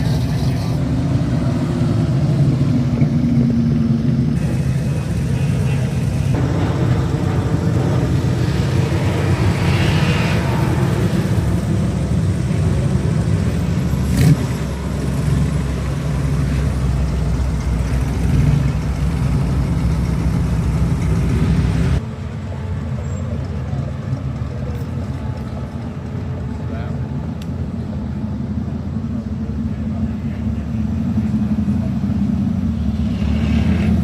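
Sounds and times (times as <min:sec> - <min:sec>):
car engine rumble: 0:00.0 - 0:34.0.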